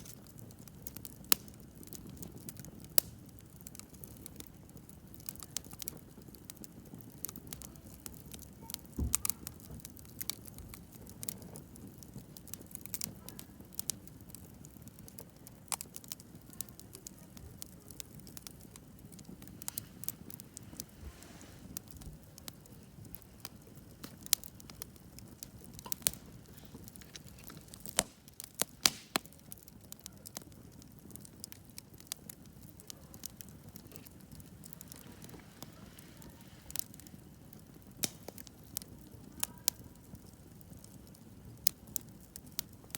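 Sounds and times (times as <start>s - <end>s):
campfire crackling and popping: 0.0s - 42.9s.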